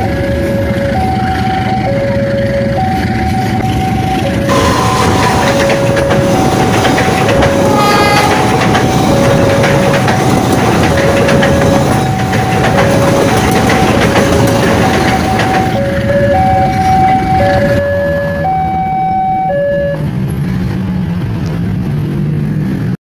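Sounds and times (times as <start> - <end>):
two-tone crossing alarm: 0.0 - 20.1
train rumbling past: 0.0 - 23.0
wheels clacking on rails: 0.0 - 23.0.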